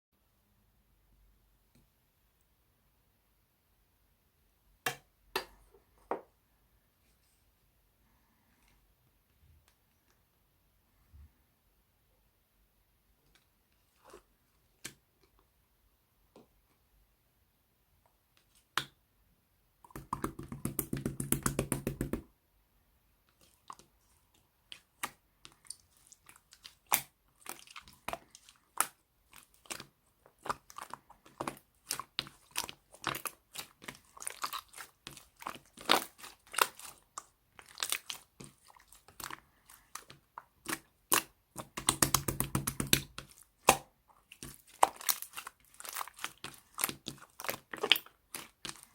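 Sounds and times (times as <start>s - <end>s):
slime crackling rapidly: 25.6s - 40.0s, 40.6s - 48.9s
slime clicking and popping: 40.7s - 43.9s.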